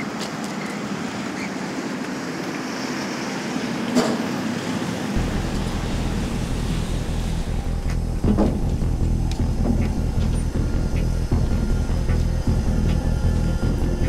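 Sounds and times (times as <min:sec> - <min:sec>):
street traffic noise: 0:00.0 - 0:14.0
suv engine rumble: 0:05.1 - 0:14.0.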